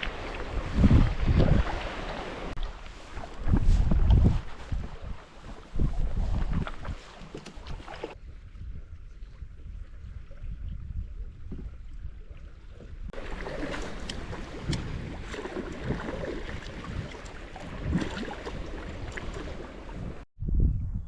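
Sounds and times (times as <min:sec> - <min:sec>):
river water splashing: 0:00.0 - 0:03.6, 0:04.3 - 0:08.2, 0:13.1 - 0:20.2
wind buffeting microphone: 0:00.0 - 0:21.0.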